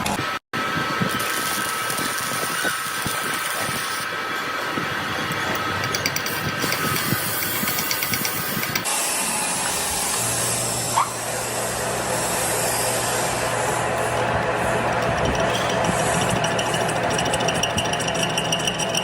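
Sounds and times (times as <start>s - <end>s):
mechanical running noise: 4.7s - 9.0s, 10.5s - 19.0s
steady low hum: 10.6s - 19.0s.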